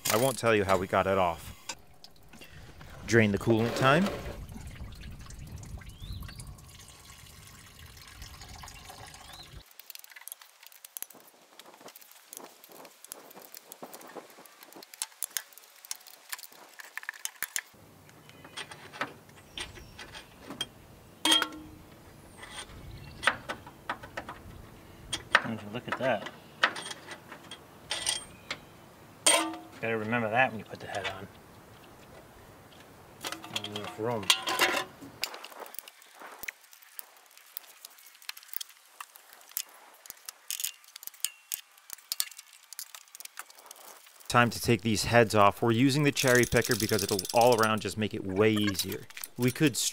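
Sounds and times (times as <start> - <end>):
metal tools clinking: 18.4 - 21.8, 26.0 - 28.6, 29.2 - 29.8, 33.2 - 36.5, 46.0 - 49.9
ringing metallic clank: 21.2 - 21.8, 29.3 - 29.8
ringing metal clink: 29.3 - 29.8.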